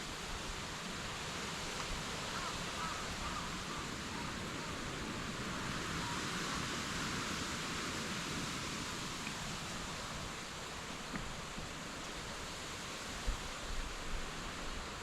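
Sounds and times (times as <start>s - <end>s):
outdoor background hiss: 0.0s - 15.0s
faint distant calls: 2.1s - 7.5s.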